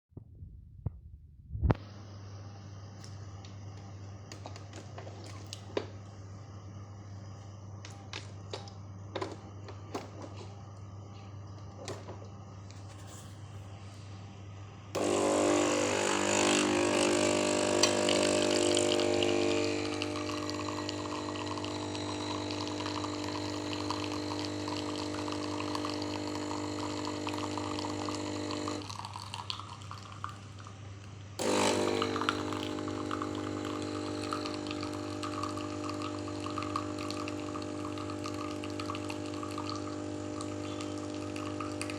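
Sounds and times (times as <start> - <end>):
espresso machine pump humming: 1.9 - 41.9.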